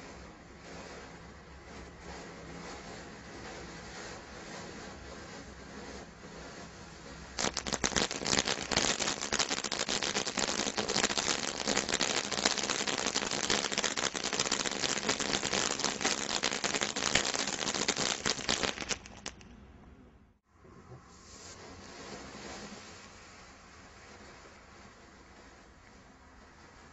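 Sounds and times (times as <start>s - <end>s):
firework crackling: 7.3s - 19.7s.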